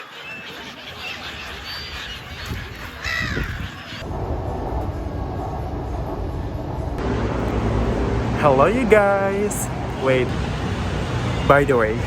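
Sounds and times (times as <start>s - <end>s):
gulls calling: 0.0s - 12.0s
steady low rumble: 4.0s - 11.5s.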